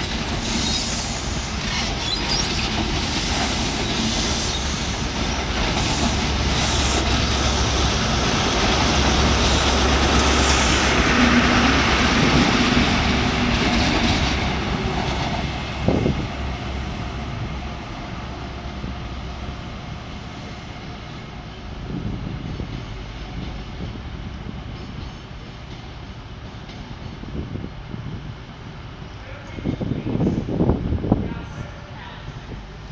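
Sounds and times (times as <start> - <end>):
rail noise: 0.0 - 32.9
train engine drone: 0.0 - 32.9.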